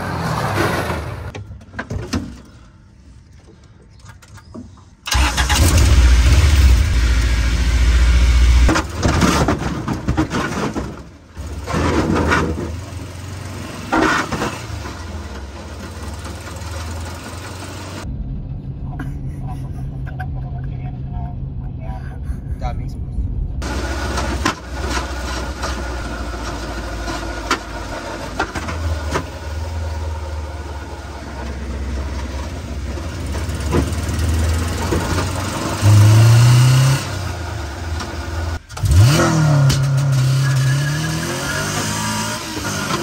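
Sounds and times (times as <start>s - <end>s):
car engine revving: 23.6s - 43.0s.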